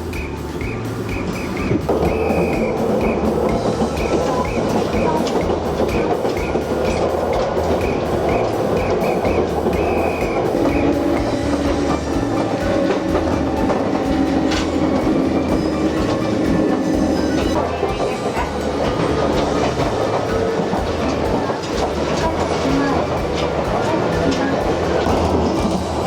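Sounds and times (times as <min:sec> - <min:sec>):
steady hum: 0:00.0 - 0:26.0
train wheels and motor rumble: 0:00.0 - 0:26.0.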